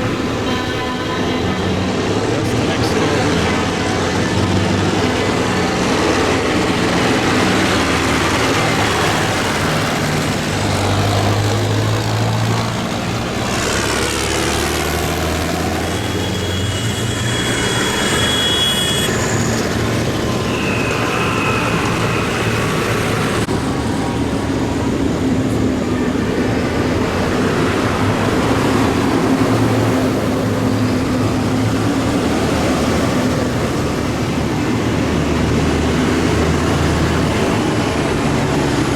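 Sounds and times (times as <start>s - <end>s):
tractor engines passing: 0.0s - 38.9s
high-pitched tones: 15.8s - 23.5s.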